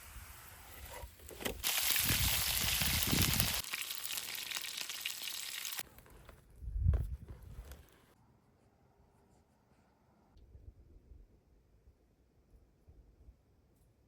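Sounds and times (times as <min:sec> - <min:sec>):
cutlets sizzling in a pan: 0:01.6 - 0:05.8.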